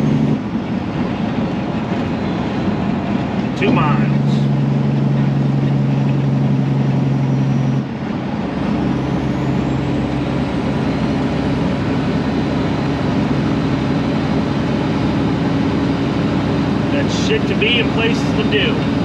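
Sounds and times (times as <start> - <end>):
diesel truck engine droning: 0.0 - 19.0.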